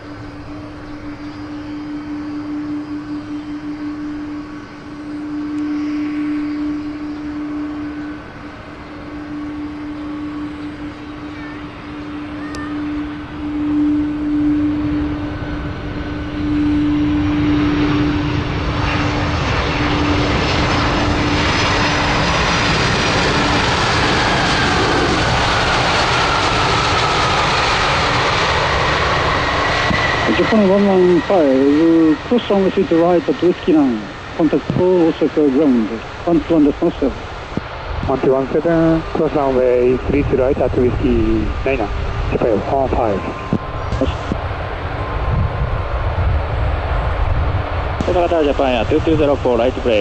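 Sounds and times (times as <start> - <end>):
jet engines roaring: 0.0 - 50.0
jet whine falling in pitch: 0.0 - 50.0.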